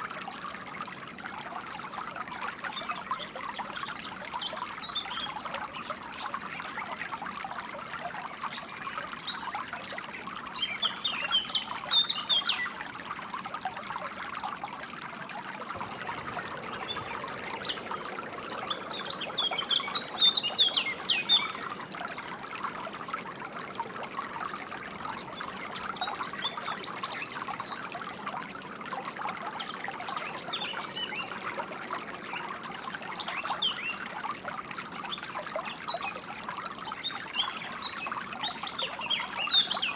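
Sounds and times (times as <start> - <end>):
water trickling: 0.0 - 39.9
songbirds chirping: 15.5 - 28.2, 29.5 - 34.1, 35.0 - 39.9.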